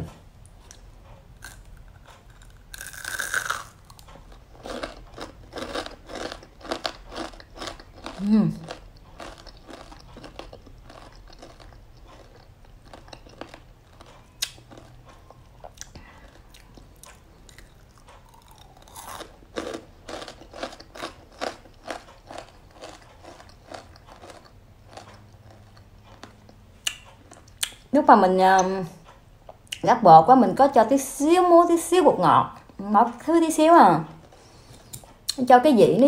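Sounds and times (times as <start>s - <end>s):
crisp chewing crunches: 1.4s - 27.8s.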